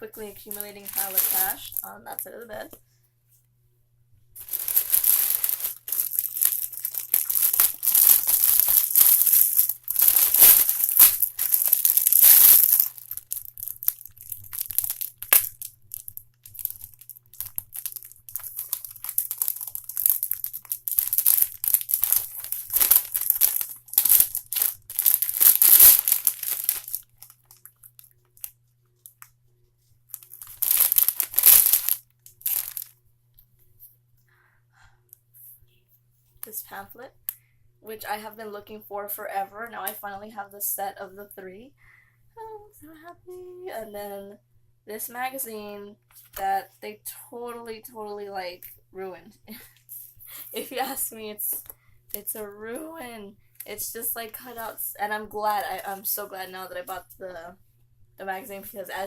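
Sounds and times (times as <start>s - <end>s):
packaging crinkling and rustling: 0.3s - 1.9s, 4.4s - 29.3s, 30.1s - 33.0s.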